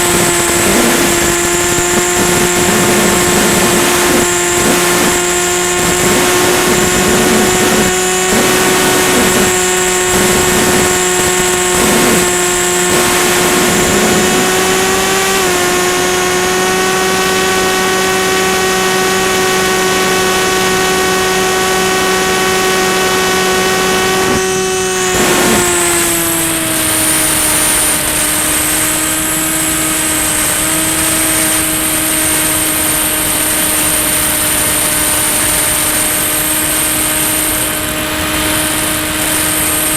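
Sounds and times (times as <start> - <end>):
rushing air: 0.0 - 15.5, 23.8 - 39.9
electric motor propeller whine: 0.0 - 39.9.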